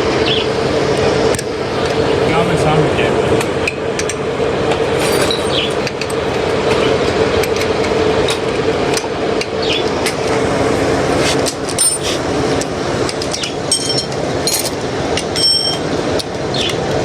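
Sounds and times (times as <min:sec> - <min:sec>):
steady hum: 0:00.0 - 0:17.0
metallic tapping and clinking: 0:13.1 - 0:15.8.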